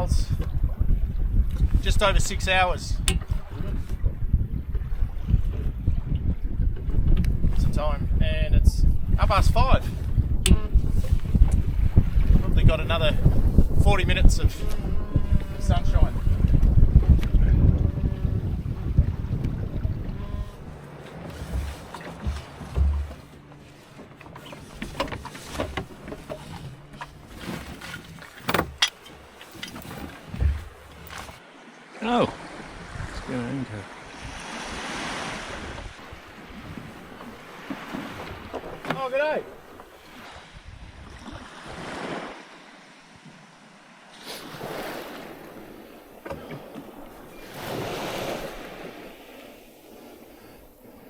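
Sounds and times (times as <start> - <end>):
wind noise on microphone: 0.0 - 23.4, 24.4 - 31.4, 32.6 - 33.3, 34.1 - 39.0, 39.6 - 42.3
water against boat hull: 0.0 - 31.5, 34.1 - 42.6, 44.2 - 51.0
knocks from boat gear: 3.0 - 4.0, 10.0 - 12.4, 16.2 - 31.4, 36.5 - 39.9, 45.6 - 47.3
small waves breaking: 10.7 - 51.0.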